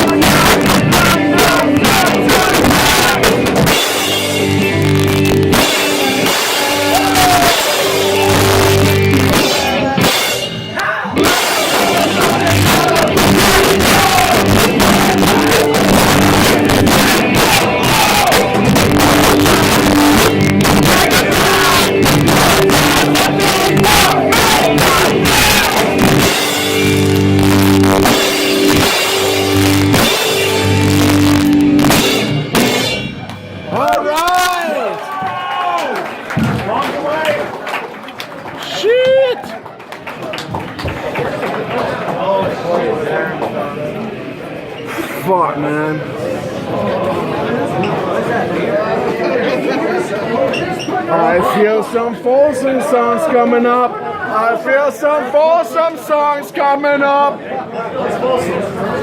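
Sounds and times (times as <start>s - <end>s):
person singing: 0.0s - 3.5s, 5.8s - 26.2s
distorted guitars: 0.0s - 34.7s
drums: 0.0s - 37.6s.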